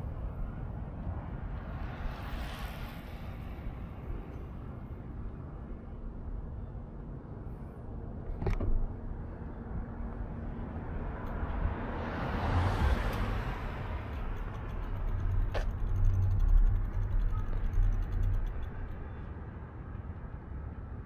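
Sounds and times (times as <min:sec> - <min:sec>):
passing traffic: 0:00.0 - 0:21.0
wind rumbling on microphone: 0:00.0 - 0:21.0.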